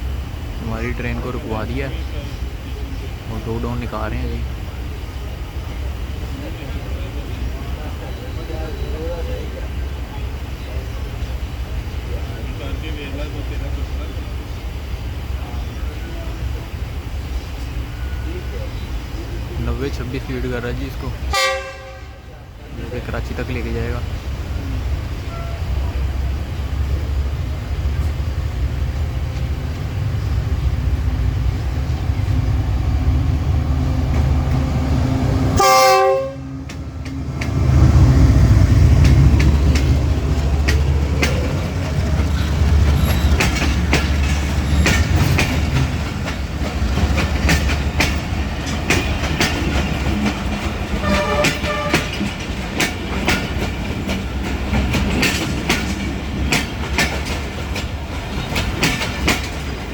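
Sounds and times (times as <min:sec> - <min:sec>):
train rumble: 0:00.0 - 0:59.9
wheels clacking over rail joints: 0:15.5 - 0:59.9
train horn: 0:21.3 - 0:22.4, 0:25.3 - 0:25.7, 0:35.5 - 0:36.6, 0:51.0 - 0:52.3.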